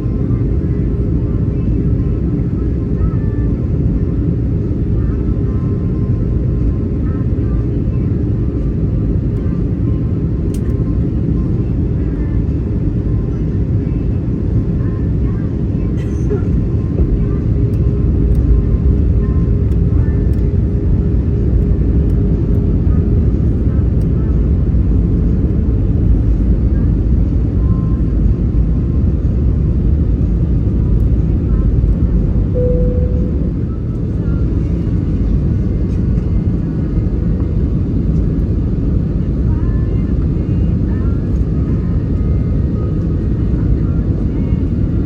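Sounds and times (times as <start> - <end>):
airplane cabin engine rumble: 0.0 - 45.0.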